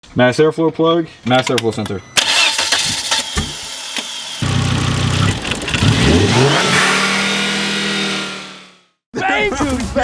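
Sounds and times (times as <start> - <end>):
car engine revving: 2.2 - 8.9.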